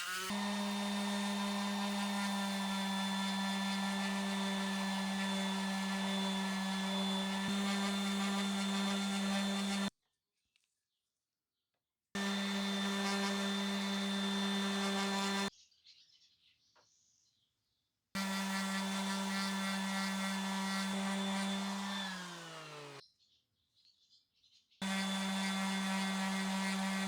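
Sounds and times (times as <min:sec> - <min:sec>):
electric power tool motor running: 0:00.0 - 0:09.9, 0:12.2 - 0:15.5, 0:18.2 - 0:23.0, 0:24.8 - 0:27.0.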